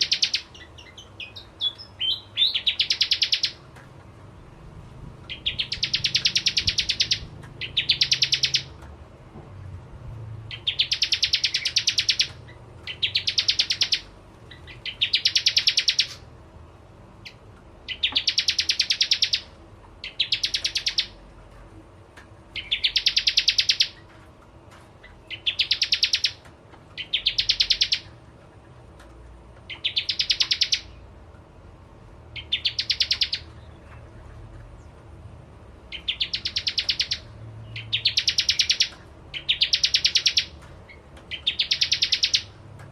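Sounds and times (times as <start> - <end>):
bird high fast trill: 0.0 - 3.6, 5.3 - 8.7, 10.5 - 14.1, 14.7 - 16.3, 17.9 - 21.2, 22.6 - 24.0, 25.3 - 26.4, 29.8 - 31.0, 32.4 - 33.5, 35.9 - 40.6, 41.3 - 42.6.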